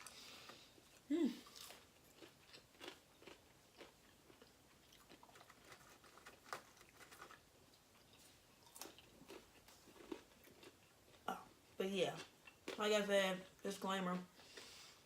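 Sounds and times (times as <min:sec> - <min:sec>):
chewing and biting food: 0:00.0 - 0:11.3.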